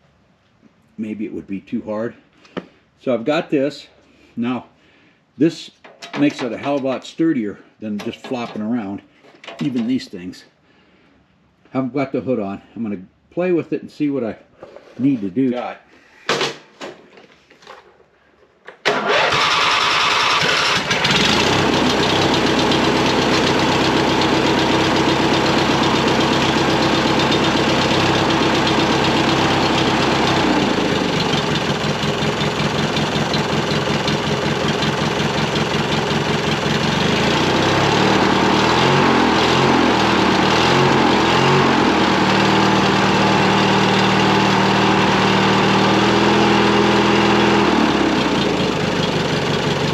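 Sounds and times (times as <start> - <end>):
small gasoline engine running: 18.9 - 49.9.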